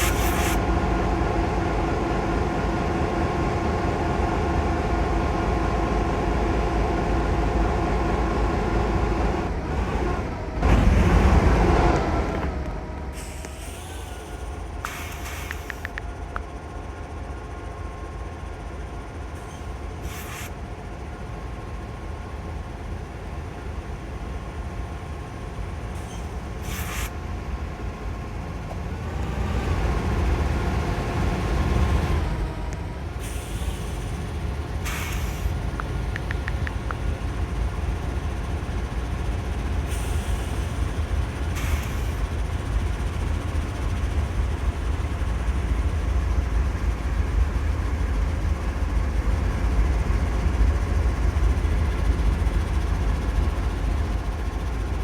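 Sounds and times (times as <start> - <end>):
freight train rumbling on rails: 0.0 - 13.4, 15.5 - 55.0
brief clicks: 14.8 - 16.5, 34.9 - 37.0.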